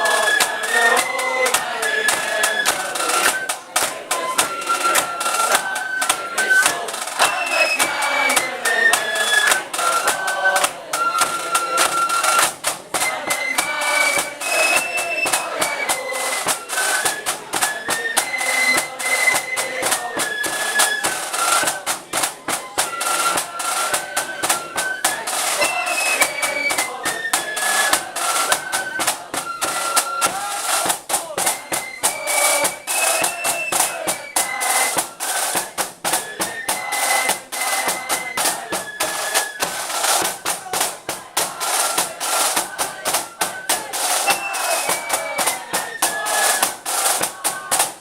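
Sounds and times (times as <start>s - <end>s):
flutes playing melody: 0.0s - 47.8s
rapid drum beat: 0.0s - 48.0s.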